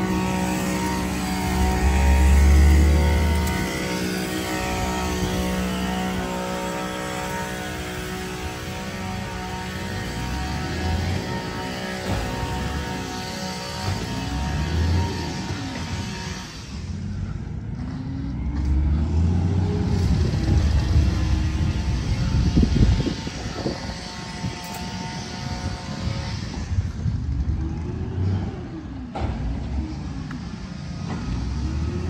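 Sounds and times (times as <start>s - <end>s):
truck diesel engine revving: 0.0s - 32.0s.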